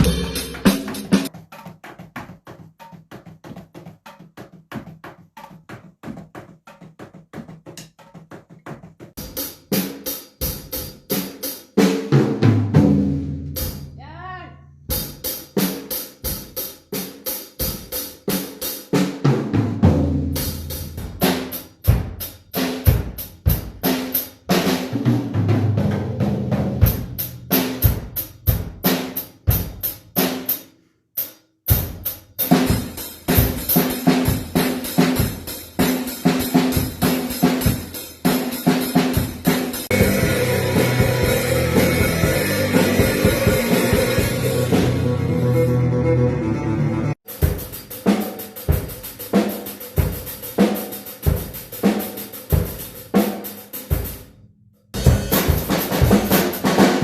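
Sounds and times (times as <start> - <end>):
musical backing with bass: 0.0 - 1.3, 39.5 - 47.2
drum kit playing: 0.0 - 54.3, 54.9 - 57.0.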